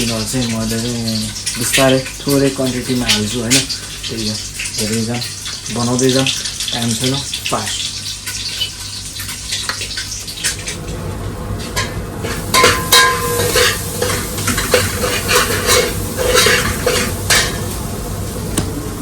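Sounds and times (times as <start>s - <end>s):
onions sizzling in a pan: 0.0s - 19.0s
metal spoon scraping a pan: 11.6s - 17.7s.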